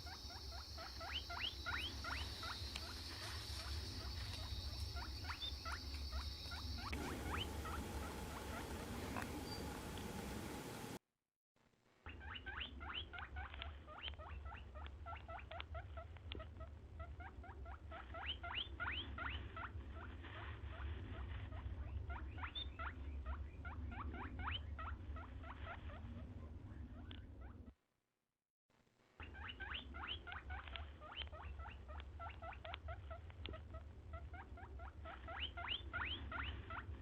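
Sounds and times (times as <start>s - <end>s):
small animal squeaking: 0.0s - 9.9s, 12.1s - 27.7s, 29.2s - 37.0s
low steady hum: 0.0s - 11.0s.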